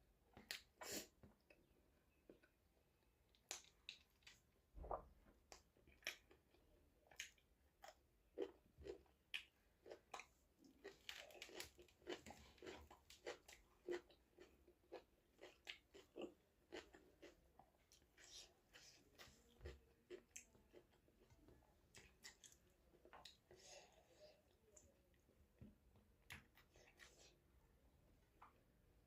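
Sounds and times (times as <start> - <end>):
person chewing and crunching food: 5.4 - 25.5, 26.1 - 27.4.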